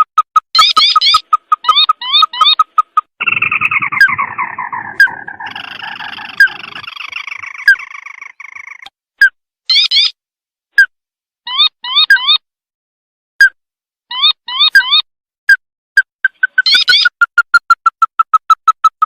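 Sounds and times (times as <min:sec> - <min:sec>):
crake calling: 0:00.4 - 0:08.9.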